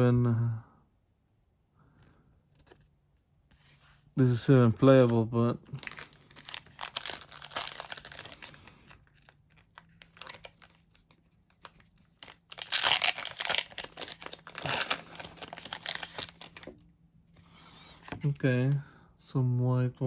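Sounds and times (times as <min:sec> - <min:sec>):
foil wrapper crinkling and tearing: 0:05.7 - 0:16.8.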